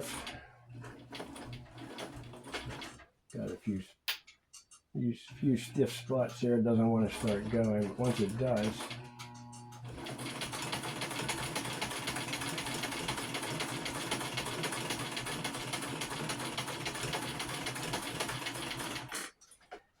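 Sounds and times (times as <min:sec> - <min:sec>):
sewing machine clattering: 0:00.0 - 0:03.1, 0:07.0 - 0:19.8.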